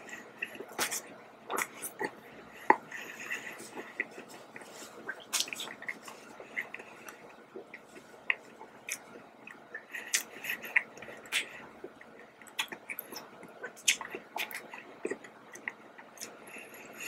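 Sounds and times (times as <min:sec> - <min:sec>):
person chewing doughnut: 0:00.0 - 0:17.0
wet mouth smacks and clicks: 0:05.1 - 0:06.0.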